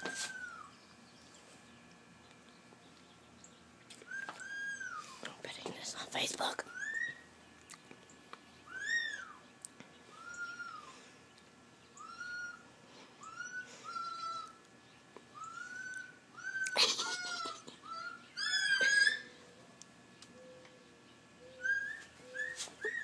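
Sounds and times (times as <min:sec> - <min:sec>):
birds whistling: 0:00.0 - 0:01.4, 0:02.5 - 0:05.2, 0:06.6 - 0:07.6, 0:08.5 - 0:11.1, 0:11.8 - 0:16.8, 0:17.8 - 0:19.6, 0:20.4 - 0:23.0
bird squawks: 0:06.7 - 0:07.3, 0:08.6 - 0:09.4, 0:10.1 - 0:10.9, 0:12.0 - 0:14.6, 0:15.3 - 0:19.4, 0:21.4 - 0:23.0.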